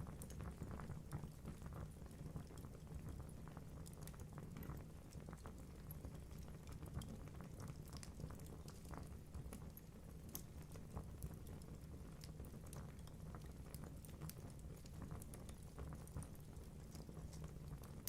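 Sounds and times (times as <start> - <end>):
fire crackling and popping: 0.0 - 18.0
low rumble of flames: 0.0 - 18.0.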